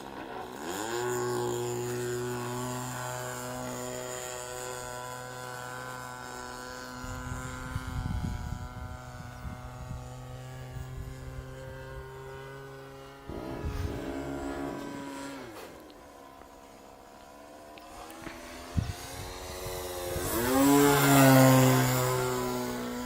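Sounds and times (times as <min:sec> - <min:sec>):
model airplane engine buzzing: 0:00.0 - 0:23.0
wind buffeting microphone: 0:07.0 - 0:12.1, 0:13.3 - 0:15.3, 0:18.4 - 0:23.0.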